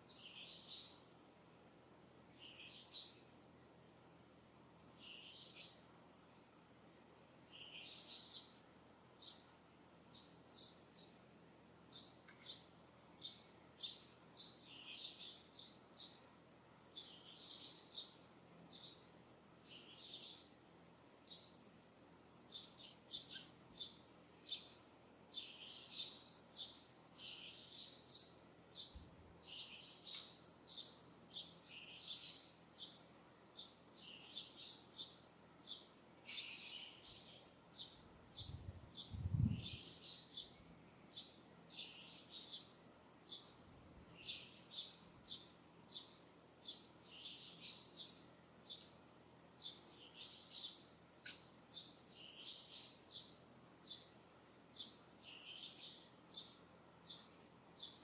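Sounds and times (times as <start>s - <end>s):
bird chirping: 0.1s - 1.2s, 5.0s - 5.8s, 9.2s - 9.5s, 10.1s - 11.2s, 11.9s - 16.2s, 16.8s - 19.0s, 22.5s - 48.9s, 49.6s - 58.0s.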